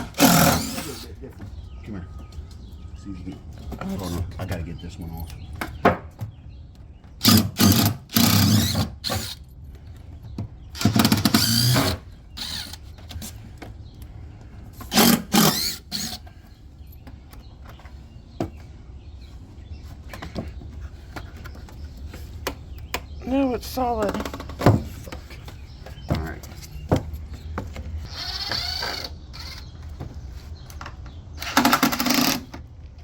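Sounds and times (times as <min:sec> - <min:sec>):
power drill bursts: 0:00.0 - 0:01.1, 0:07.2 - 0:09.4, 0:10.8 - 0:12.8, 0:14.9 - 0:16.2, 0:28.1 - 0:29.7, 0:31.4 - 0:32.5.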